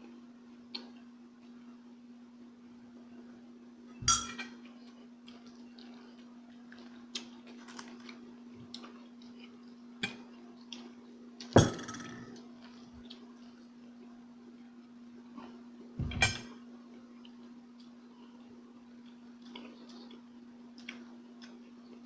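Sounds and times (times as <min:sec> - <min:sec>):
steady hum: 0:00.0 - 0:22.0
utensils clinking on plate: 0:04.0 - 0:04.6.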